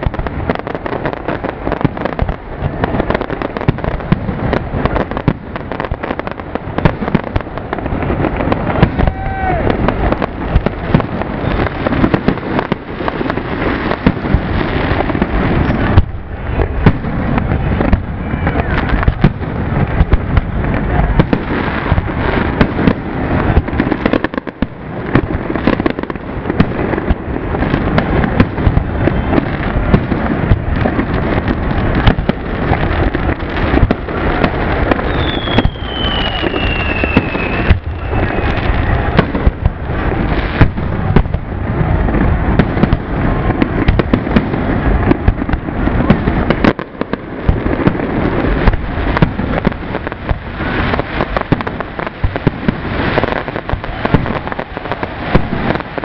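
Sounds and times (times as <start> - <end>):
fireworks bursting and crackling: 0.0 - 56.0
falling firework whistle: 8.3 - 19.4, 33.7 - 41.3.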